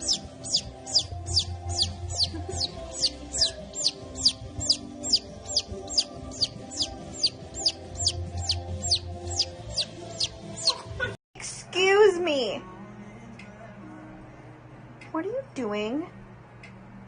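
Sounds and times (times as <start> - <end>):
high downward-sweeping chirp: 0.0 - 10.8
faint background music: 0.0 - 17.0.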